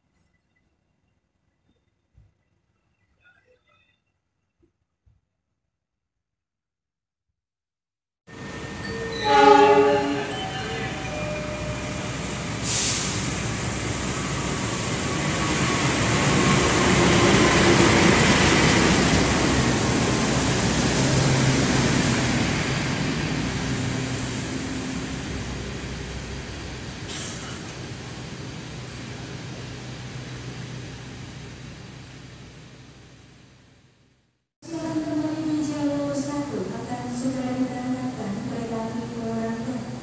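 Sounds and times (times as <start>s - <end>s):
train running on rails: 8.3s - 33.3s.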